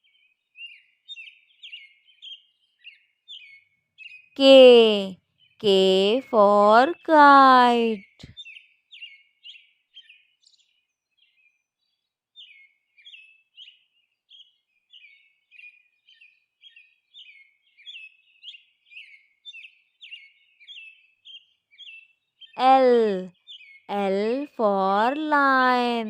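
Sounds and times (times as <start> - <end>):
bird chirping: 7.6 - 26.0.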